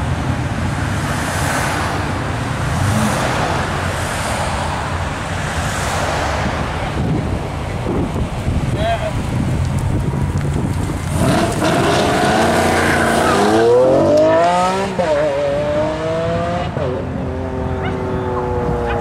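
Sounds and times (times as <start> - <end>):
sports car engine accelerating: 11.0 - 19.0.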